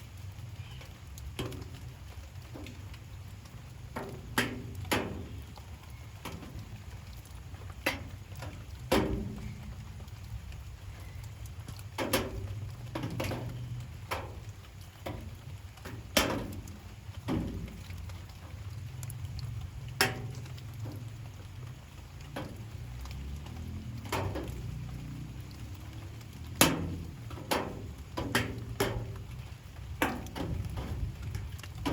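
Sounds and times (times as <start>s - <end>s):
water drops tapping hard surface: 3.9s - 10.2s, 11.7s - 14.4s, 15.0s - 18.2s, 19.0s - 21.2s, 22.2s - 31.9s.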